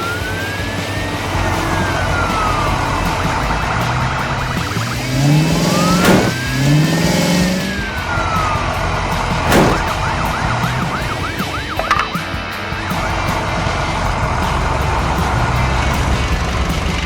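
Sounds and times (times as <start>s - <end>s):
background music: 0.0s - 17.0s
toy-like car engines revving: 0.0s - 17.0s
swooshing hits: 5.5s - 7.7s, 9.5s - 10.1s.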